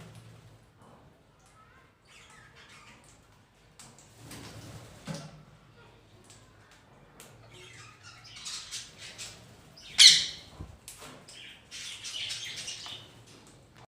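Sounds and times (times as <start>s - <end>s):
budgies chirping and chattering: 2.0s - 3.3s, 7.4s - 10.6s, 11.3s - 13.3s
parrot squawk: 9.9s - 10.5s.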